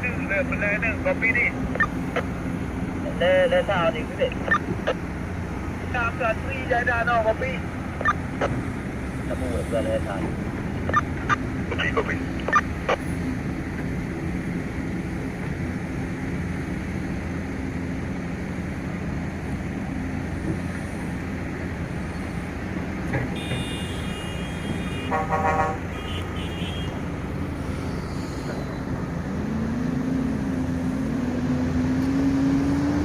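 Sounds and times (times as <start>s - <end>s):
horn tooting: 23.3s - 27.0s.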